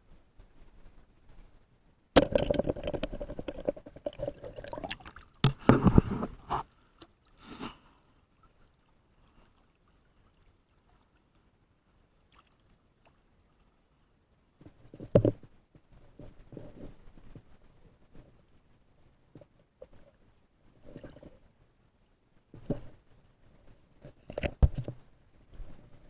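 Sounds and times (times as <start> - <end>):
river water sloshing and gurgling: 3.2 - 5.6, 12.2 - 12.8
small splash: 12.3 - 12.7.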